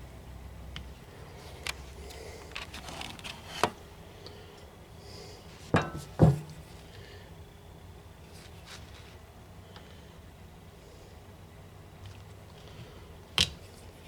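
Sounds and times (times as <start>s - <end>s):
metallic knocks: 5.8s - 6.7s.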